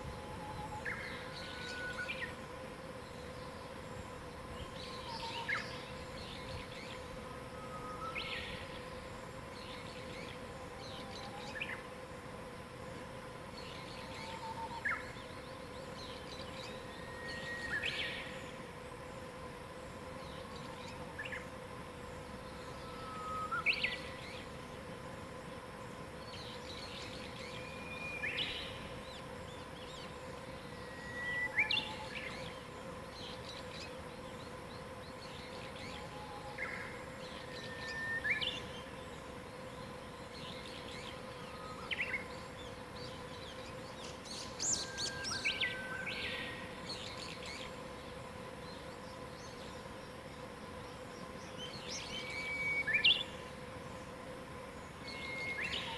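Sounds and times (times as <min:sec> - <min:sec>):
faint hum: 0:00.0 - 0:55.9
songbirds whistling: 0:04.6 - 0:06.9, 0:07.5 - 0:08.7, 0:15.9 - 0:18.5, 0:22.5 - 0:24.5, 0:26.3 - 0:30.1, 0:30.7 - 0:32.6, 0:33.3 - 0:38.9, 0:40.4 - 0:47.7, 0:51.5 - 0:53.4, 0:54.9 - 0:55.9.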